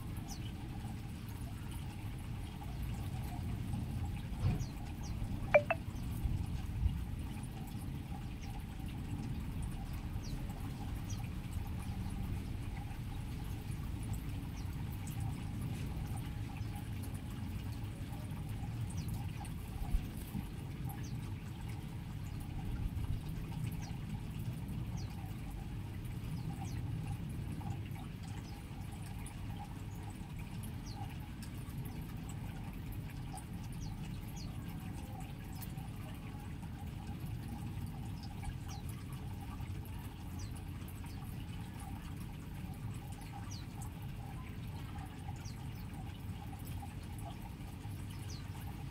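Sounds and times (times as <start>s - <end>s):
small birds chirping: 4.6s - 5.8s, 48.1s - 48.8s
low rushing water-like noise: 5.5s - 6.0s.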